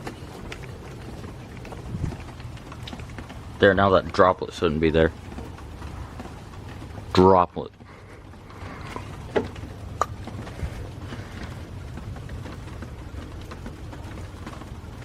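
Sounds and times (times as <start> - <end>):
low thunder rumble: 0.0 - 7.2
rain falling: 0.0 - 15.0
raindrop taps: 0.0 - 15.0.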